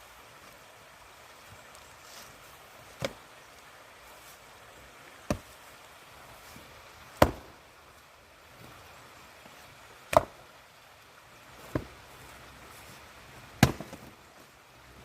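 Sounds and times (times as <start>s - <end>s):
axe chopping firewood: 2.9s - 3.2s, 5.2s - 5.6s, 7.1s - 7.6s, 10.1s - 10.4s, 11.6s - 12.0s, 13.6s - 14.2s.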